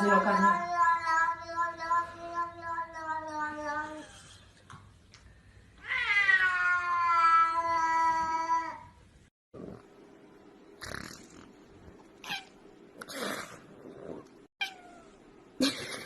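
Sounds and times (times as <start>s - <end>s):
cat meowing: 5.8s - 8.7s, 12.2s - 12.6s, 14.6s - 15.2s
faint hum: 6.7s - 16.0s.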